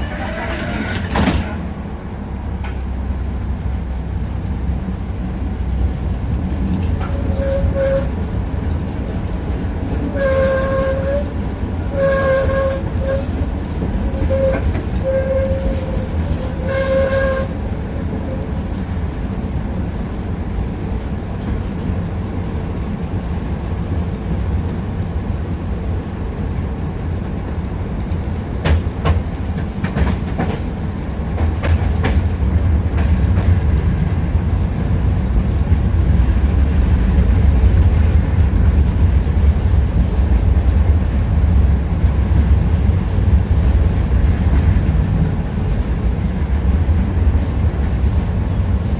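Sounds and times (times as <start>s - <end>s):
wheel clacks over rail joints: 0.0s - 1.7s
tram wheels and motors rumbling: 0.0s - 48.9s.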